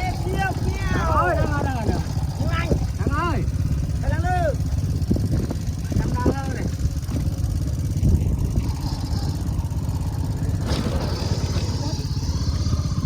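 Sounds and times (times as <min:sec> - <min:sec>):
small engine chugging: 0:00.0 - 0:13.0
rattle and hiss: 0:06.8 - 0:13.0.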